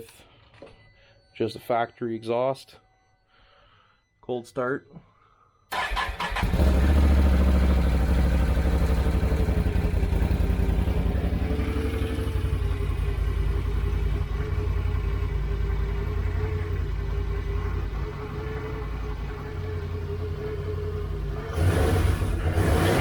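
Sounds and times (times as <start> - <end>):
atv engine idling: 5.8 - 23.0.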